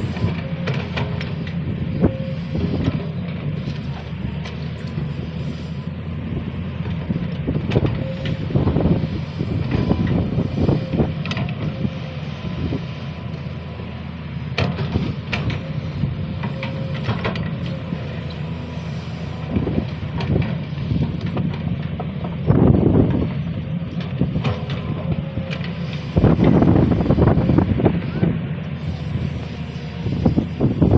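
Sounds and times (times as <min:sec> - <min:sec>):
thin steady whine: 0:00.0 - 0:21.4, 0:22.5 - 0:30.9
excavator diesel engine under load: 0:00.0 - 0:30.9.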